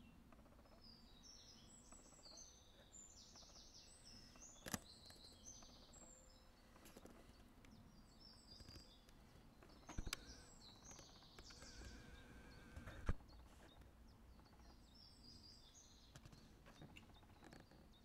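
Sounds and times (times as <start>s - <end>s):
faint songbirds singing: 0.0s - 18.0s
sharp clicks: 9.8s - 13.2s.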